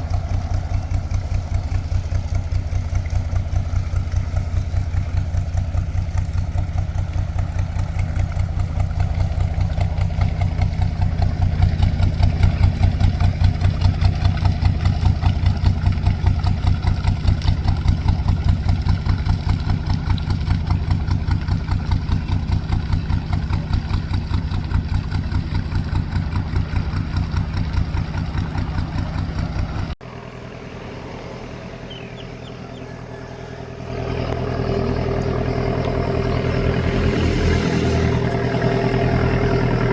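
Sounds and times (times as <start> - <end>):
boat engine chugging: 0.0 - 39.9.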